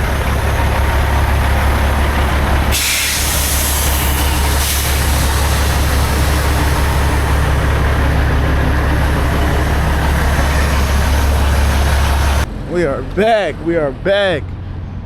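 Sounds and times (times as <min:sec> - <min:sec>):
diesel truck engine droning: 0:00.0 - 0:15.0.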